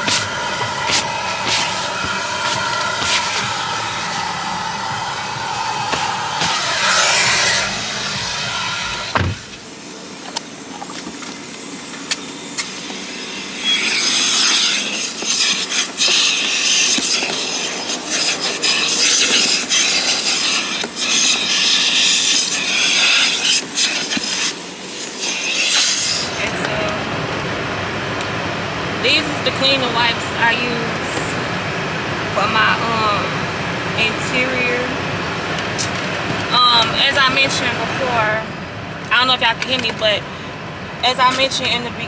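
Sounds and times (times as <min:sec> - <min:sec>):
scrubbing car surfaces: 0:00.0 - 0:09.6.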